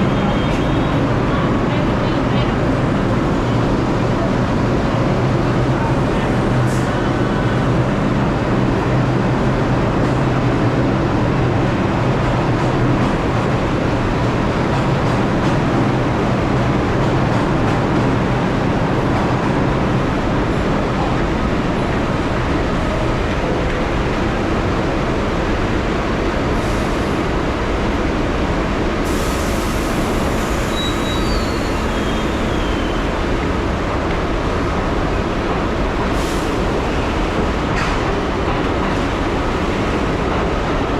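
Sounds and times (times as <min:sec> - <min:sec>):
subway train wheels rumbling: 0:00.0 - 0:40.9
faint high squeal: 0:30.6 - 0:33.1.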